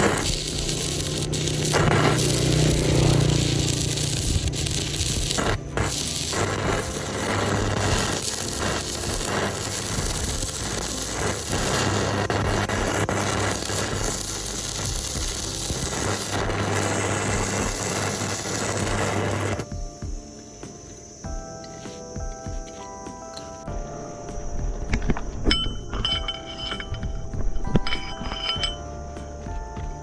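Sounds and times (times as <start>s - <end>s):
electric hum: 0.0s - 21.5s
power tool hissing and crackling: 0.0s - 23.6s.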